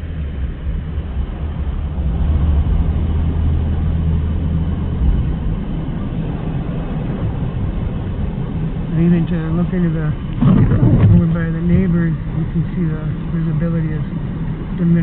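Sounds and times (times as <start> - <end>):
wind gusting over microphone: 6.2 - 13.4.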